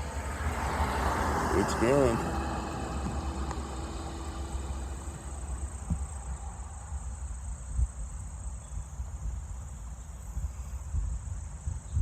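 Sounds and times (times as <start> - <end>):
insect chorus: 0.0 - 12.0
soft bumps: 1.7 - 6.7.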